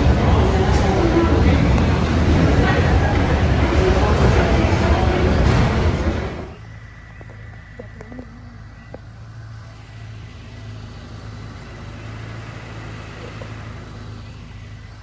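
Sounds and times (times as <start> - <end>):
motor vehicle humming: 0.0 - 15.0
faint clicks: 13.0 - 13.8.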